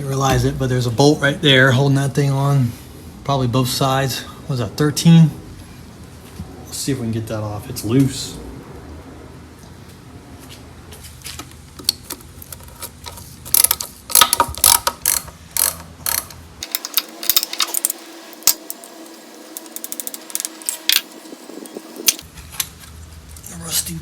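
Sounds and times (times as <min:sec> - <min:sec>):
ratchet wrench clicking: 0:13.5 - 0:18.0.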